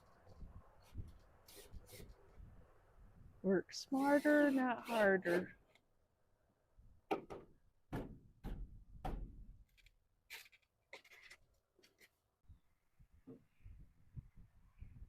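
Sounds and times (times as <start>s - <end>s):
scratchy scraping: 4.0s - 5.6s, 9.8s - 12.2s
dull knocks: 7.1s - 9.4s.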